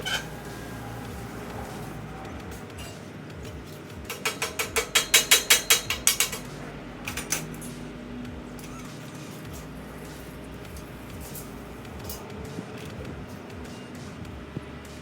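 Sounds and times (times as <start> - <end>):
sharp mechanical clicks: 3.4 - 14.0.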